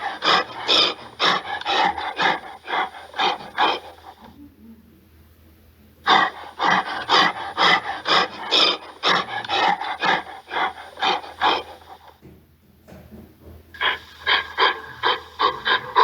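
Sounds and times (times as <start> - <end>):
gorilla breathing rapidly: 0.0 - 4.4, 6.1 - 12.2, 13.8 - 16.0.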